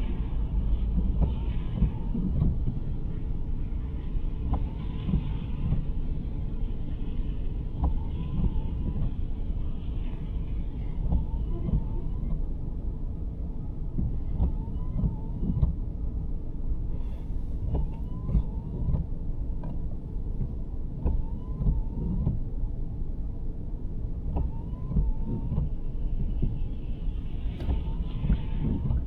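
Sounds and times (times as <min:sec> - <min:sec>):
low road rumble: 0:00.0 - 0:29.0
windshield wipers squeaking: 0:17.0 - 0:22.4, 0:27.5 - 0:29.0.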